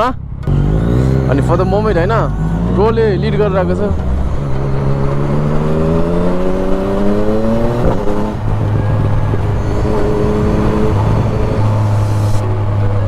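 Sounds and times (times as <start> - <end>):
motorcycle engine revving: 0.0 - 13.0
wind rush on microphone: 5.2 - 13.0.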